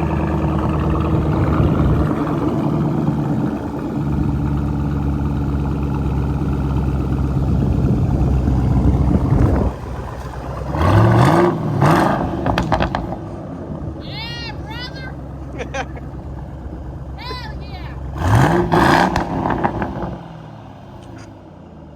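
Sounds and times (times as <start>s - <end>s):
engine revving: 0.0s - 13.4s, 18.0s - 21.3s
car engine idling: 0.0s - 21.9s.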